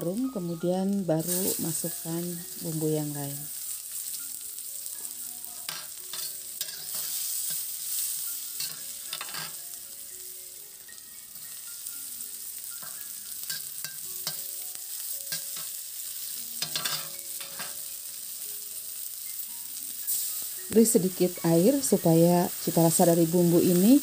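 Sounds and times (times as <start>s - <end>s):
food sizzling in oil: 0.0s - 24.0s
metal spatula scraping a wok: 5.6s - 9.6s, 12.8s - 14.5s, 16.6s - 17.8s.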